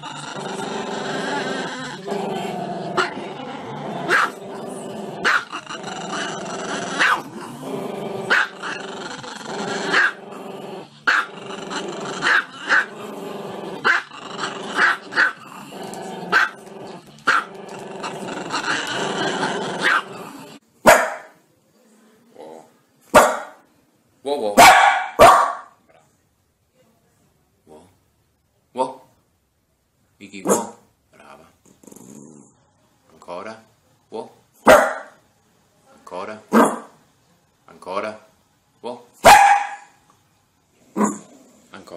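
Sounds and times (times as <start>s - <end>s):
dog barking sharply: 20.9s - 21.3s, 23.2s - 23.6s, 24.6s - 25.8s, 30.5s - 30.8s, 34.7s - 35.2s, 39.2s - 40.0s.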